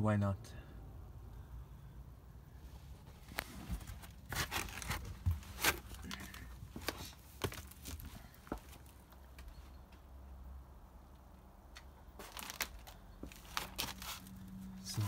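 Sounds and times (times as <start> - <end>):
rustling and scraping: 2.7 - 9.8, 12.2 - 15.0.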